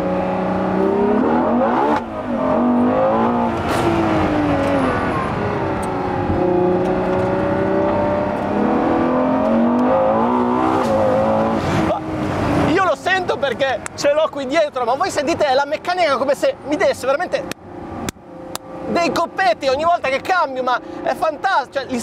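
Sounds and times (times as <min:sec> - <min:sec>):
car engine accelerating: 0:00.0 - 0:13.1
quick gear upshifts: 0:00.0 - 0:14.2.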